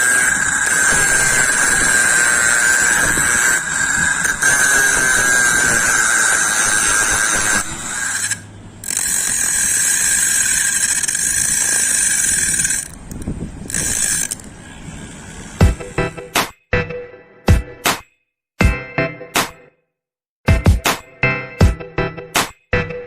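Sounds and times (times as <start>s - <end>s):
small electric motor whining: 0.0s - 16.3s.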